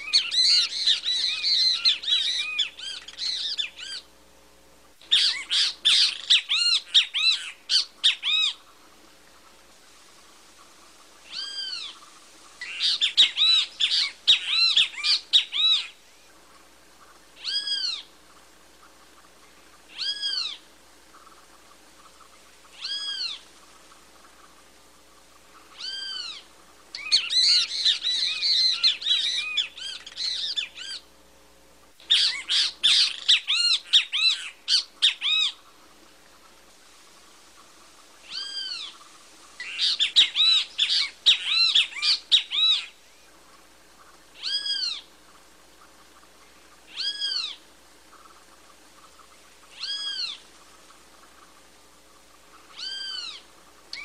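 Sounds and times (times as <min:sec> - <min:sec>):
birds calling: 0:00.0 - 0:54.0.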